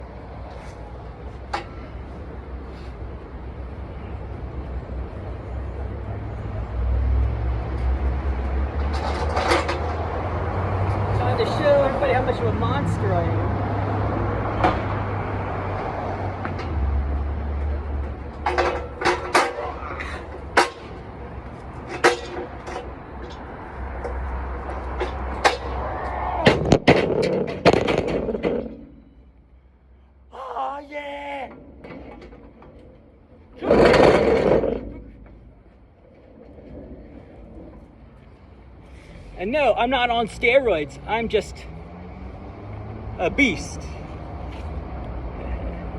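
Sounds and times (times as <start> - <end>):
vehicle engine rumbling: 0.0 - 30.3, 31.0 - 45.9
loud metal bangs: 26.4 - 29.2.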